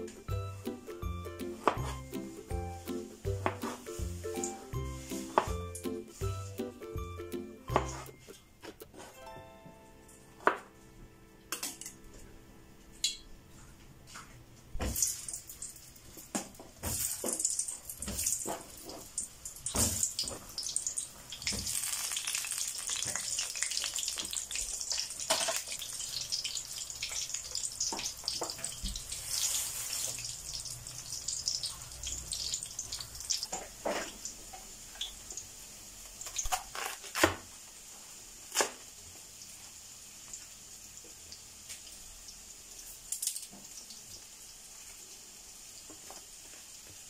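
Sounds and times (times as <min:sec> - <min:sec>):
knife chopping on plastic board: 0:01.6 - 0:02.0, 0:03.3 - 0:03.8, 0:07.7 - 0:08.1
banana frying in hot oil: 0:14.8 - 0:47.0.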